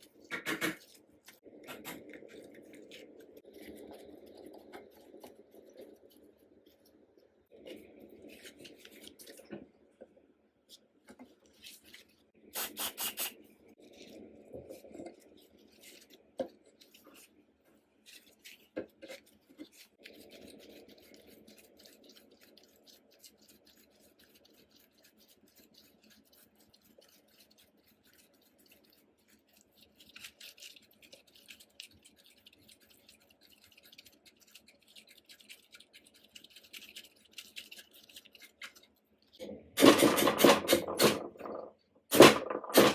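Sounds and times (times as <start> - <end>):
sharp clicks and knocks: 0.3 - 0.9.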